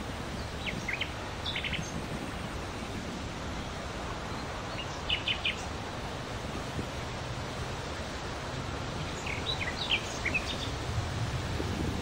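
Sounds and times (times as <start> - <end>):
outdoor background hiss: 0.0 - 12.0
birds chirping: 0.3 - 2.0, 4.2 - 5.8, 9.0 - 10.8.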